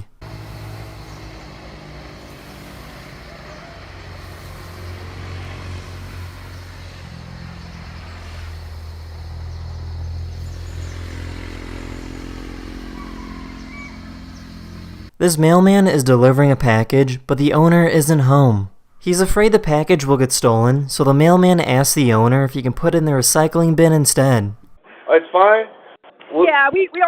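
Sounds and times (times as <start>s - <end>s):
honeybee colony buzzing: 0.0s - 15.1s
background hiss: 0.2s - 9.1s.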